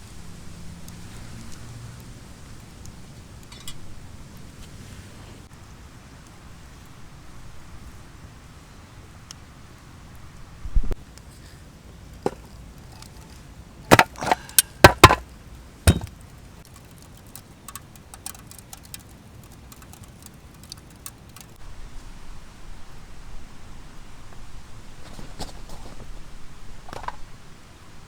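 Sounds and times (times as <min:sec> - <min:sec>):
firewood cracking: 0:11.0 - 0:21.6
dull thump: 0:13.9 - 0:15.2, 0:15.9 - 0:16.1
small clicks of wood handled: 0:15.9 - 0:21.6.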